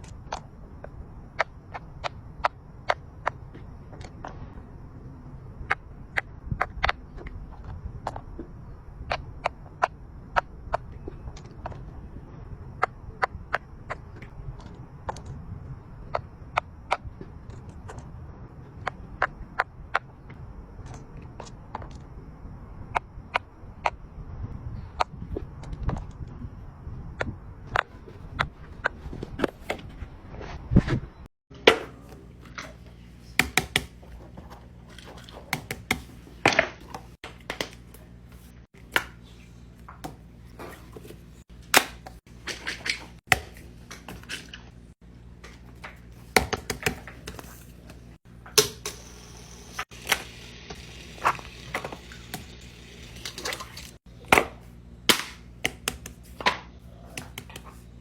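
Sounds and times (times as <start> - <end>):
steady low hum: 0.0 - 31.2, 43.4 - 58.0.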